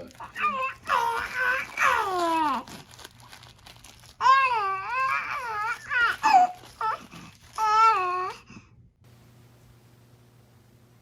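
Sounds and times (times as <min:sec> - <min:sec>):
baby fussing and babbling: 0:00.1 - 0:02.7, 0:04.2 - 0:08.7
baby squealing: 0:00.2 - 0:02.7, 0:04.2 - 0:08.3.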